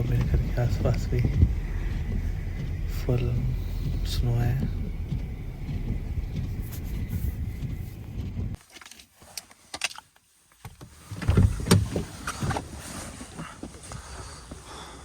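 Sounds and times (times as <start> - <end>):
car engine rumble inside cabin: 0.0 - 8.6.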